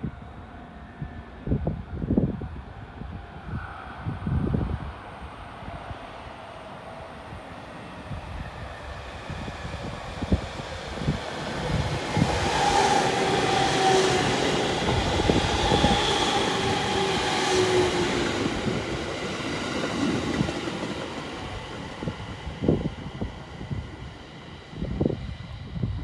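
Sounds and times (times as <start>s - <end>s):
electric train whine: 0.0s - 26.0s
train wheels rumbling on rails: 8.0s - 26.0s.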